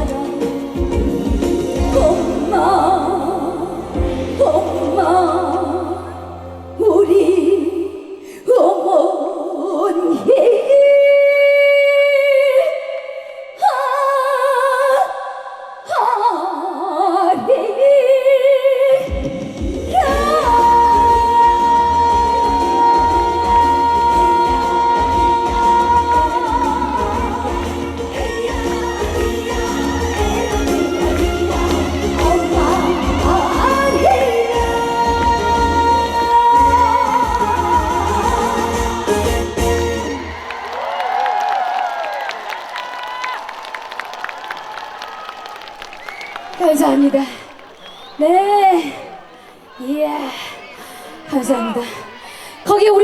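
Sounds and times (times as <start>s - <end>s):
band with heavy bass: 0.0s - 6.8s, 19.2s - 40.4s
woman singing with vibrato: 0.0s - 40.5s, 48.2s - 53.0s.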